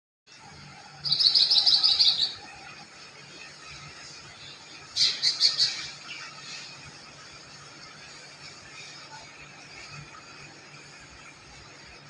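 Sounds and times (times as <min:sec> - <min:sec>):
songbird chirping trills: 0:01.0 - 0:02.6.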